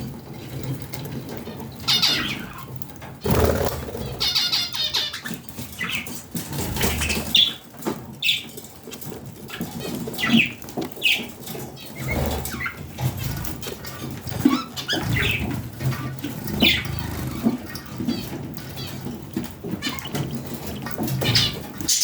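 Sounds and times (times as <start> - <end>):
budgerigars chirping: 1.8 - 8.6, 9.5 - 22.0
wing flapping: 1.9 - 5.6, 6.3 - 7.6, 11.9 - 22.0.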